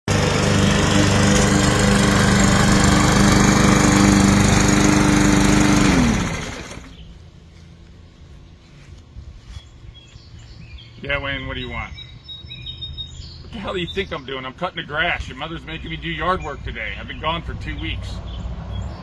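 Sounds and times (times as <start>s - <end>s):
lawn mower engine winding down: 0.1s - 7.2s.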